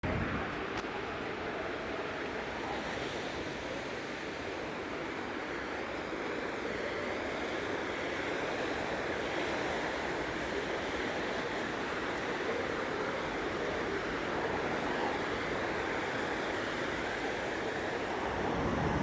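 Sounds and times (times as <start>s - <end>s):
tyres hissing on wet road: 0.1s - 19.0s.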